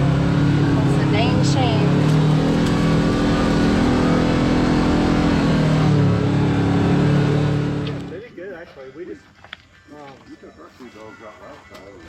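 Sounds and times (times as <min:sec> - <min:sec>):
off-road vehicle engine running: 0:00.0 - 0:08.2.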